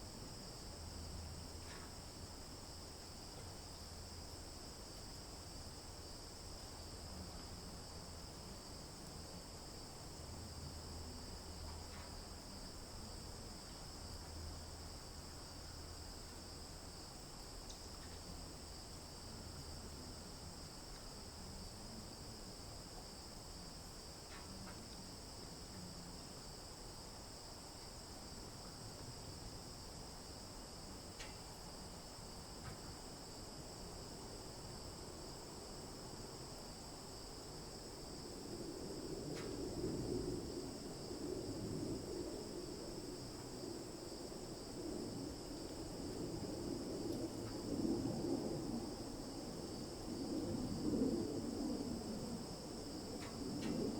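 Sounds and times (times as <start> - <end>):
high-pitched insect chorus: 0.0 - 53.9
faint ticks: 1.6 - 2.0, 11.5 - 12.4, 17.4 - 18.6, 24.2 - 26.1, 31.1 - 31.5, 39.3 - 39.6, 53.2 - 53.9.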